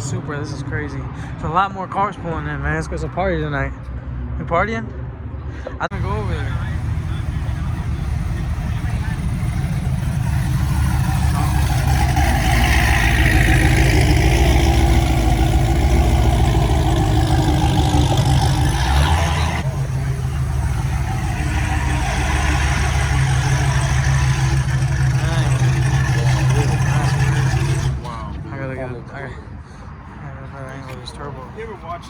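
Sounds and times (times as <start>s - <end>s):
car engine running: 5.9s - 28.9s.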